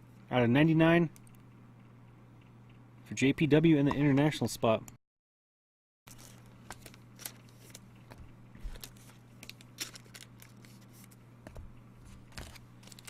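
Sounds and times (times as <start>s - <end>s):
low electrical hum: 0.0s - 5.0s, 6.1s - 13.0s
trading cards clicking and rustling: 6.1s - 13.0s.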